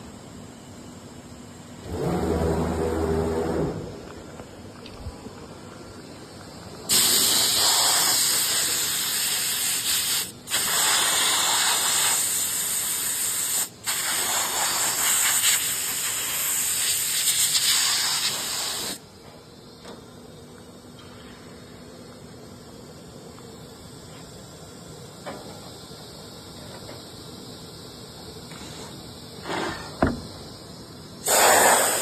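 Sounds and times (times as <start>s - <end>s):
loud hiss of rushing air: 6.9s - 19.0s, 31.2s - 32.0s.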